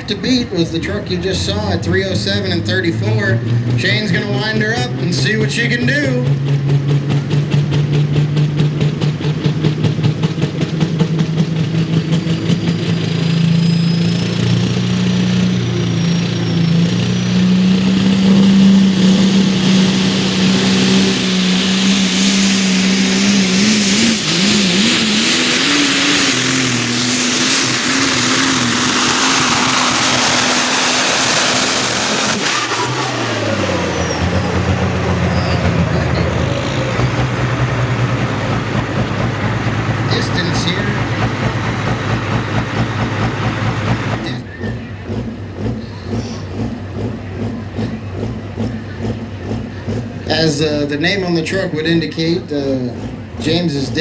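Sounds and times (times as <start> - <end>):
diesel pickup engine at full throttle: 0.0 - 54.0
turbo whistle: 18.2 - 39.2.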